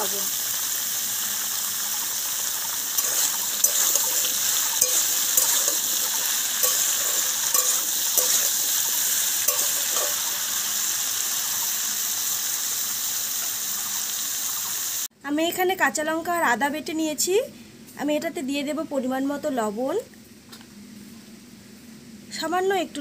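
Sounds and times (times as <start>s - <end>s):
vegetables sizzling in oil: 0.0s - 15.1s
spatula knocking and scraping pan: 3.0s - 10.4s.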